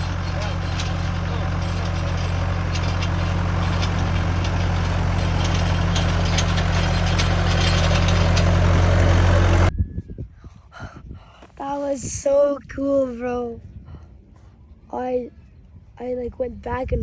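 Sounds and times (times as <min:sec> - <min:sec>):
tractor engine droning: 0:00.0 - 0:09.7.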